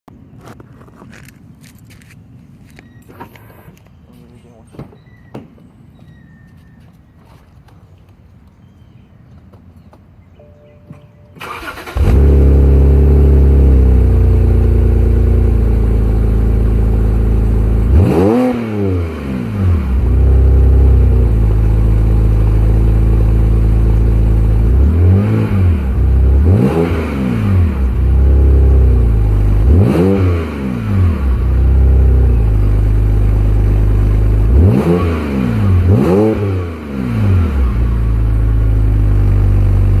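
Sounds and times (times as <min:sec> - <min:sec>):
car engine idling: 0:11.4 - 0:18.1, 0:19.8 - 0:24.9, 0:31.1 - 0:34.8
car engine starting: 0:11.4 - 0:40.0
engine revving: 0:11.4 - 0:40.0.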